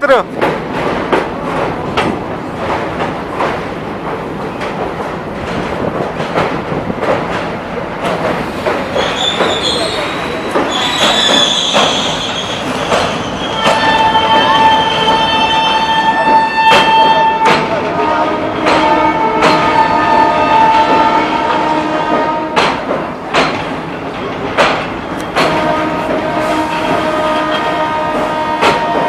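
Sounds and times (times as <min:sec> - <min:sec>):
train running on rails: 0:00.0 - 0:29.0
metallic wheel squeal: 0:09.0 - 0:17.4.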